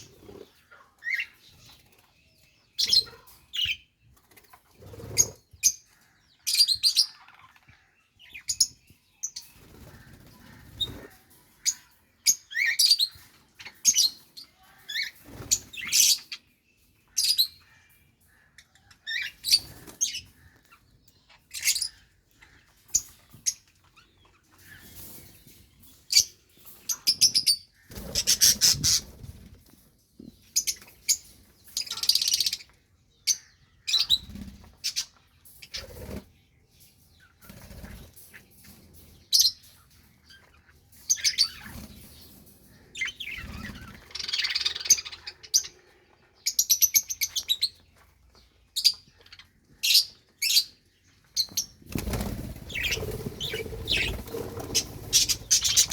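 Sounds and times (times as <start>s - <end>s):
budgerigars chirping: 26.9s - 29.2s, 43.0s - 45.8s, 51.4s - 55.9s
wings flapping: 51.8s - 55.9s.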